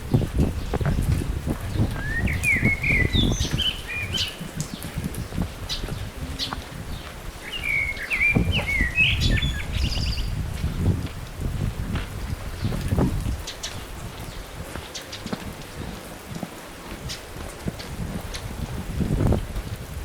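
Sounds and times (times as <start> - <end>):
songbird chirping and warbling: 1.7 - 10.4.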